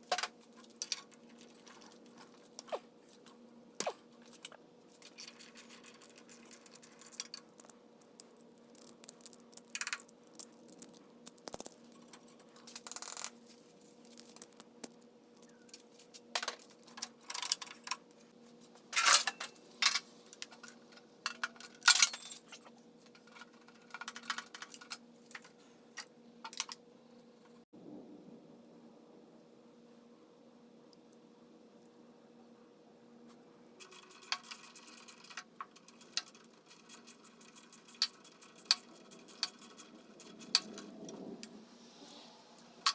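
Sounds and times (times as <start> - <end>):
faint steady hum: 0.0 - 42.9
metal tools clinking: 19.0 - 22.7.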